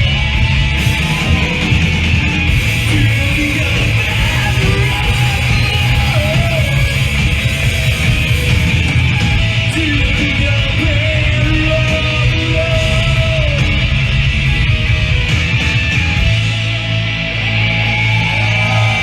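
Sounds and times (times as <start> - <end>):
distorted electric guitars: 0.0 - 19.0
drums: 0.0 - 19.0.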